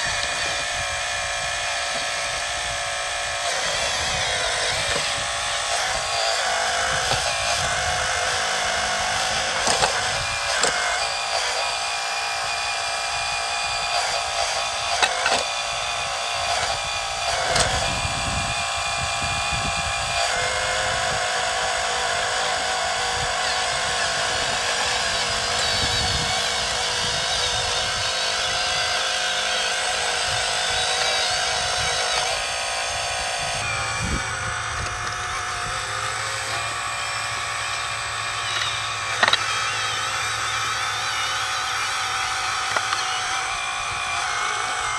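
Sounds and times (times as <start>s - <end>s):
toy excavator hydraulic whine: 0.0s - 44.9s
sharp clicks and knocks: 4.7s - 11.6s, 14.9s - 15.5s, 37.6s - 40.8s, 42.6s - 43.1s.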